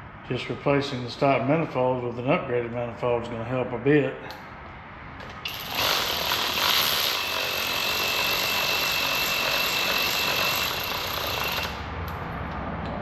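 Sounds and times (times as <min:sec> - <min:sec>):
power tool whining: 0:05.4 - 0:11.9.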